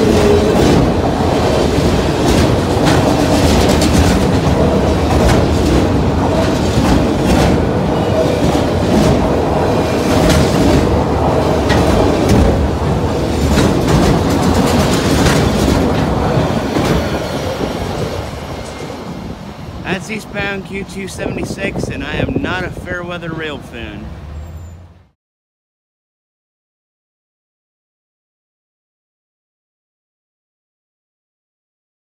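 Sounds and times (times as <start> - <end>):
wheels clicking over rail joints: 0.0 - 19.2
steel wheels rumbling on rail: 0.0 - 25.1.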